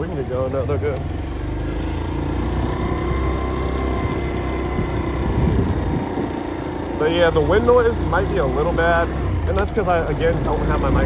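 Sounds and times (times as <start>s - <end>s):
motorcycle engine accelerating: 0.0s - 11.0s
wind noise on microphone: 4.6s - 6.5s.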